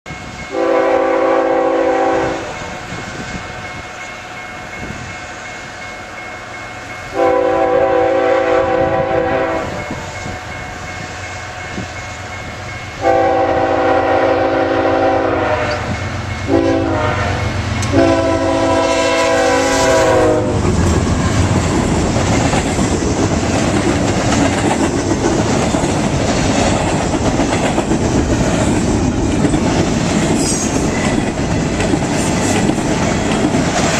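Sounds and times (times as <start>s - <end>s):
diesel locomotive engine: 0.1s - 33.9s
train wheels rushing on rails: 0.1s - 33.9s
locomotive horn blasts: 0.5s - 2.6s, 7.1s - 9.8s, 13.0s - 15.9s, 16.5s - 20.7s.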